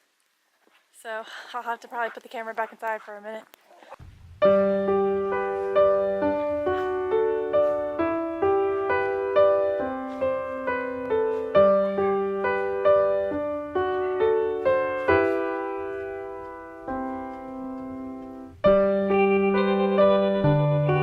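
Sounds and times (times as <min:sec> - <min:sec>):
piano music: 0:04.4 - 0:21.0.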